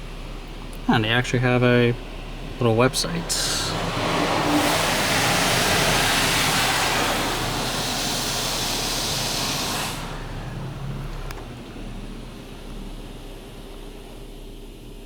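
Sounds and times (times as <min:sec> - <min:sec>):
water spray hissing on car: 0:02.6 - 0:12.5.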